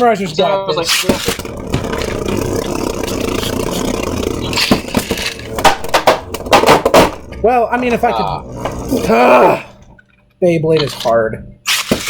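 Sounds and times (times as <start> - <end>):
spinning tops whirring and scraping: 0.7 - 9.1, 11.7 - 12.0.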